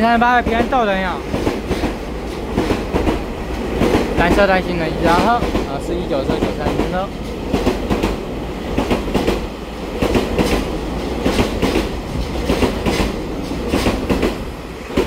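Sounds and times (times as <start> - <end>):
train rumble: 0.0 - 15.0
train wheels clacking over rail joints: 0.4 - 15.0.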